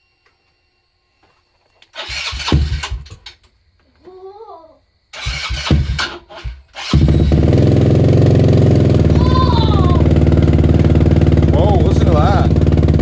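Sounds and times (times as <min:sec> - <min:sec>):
atv engine cranking: 0:01.8 - 0:03.4, 0:05.2 - 0:13.0
atv engine running: 0:05.2 - 0:13.0.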